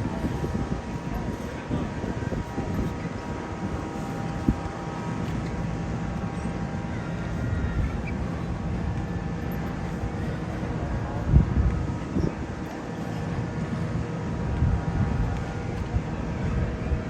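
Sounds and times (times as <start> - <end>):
faint steady hum: 0.0 - 17.0
low rumble and hiss: 0.0 - 17.0.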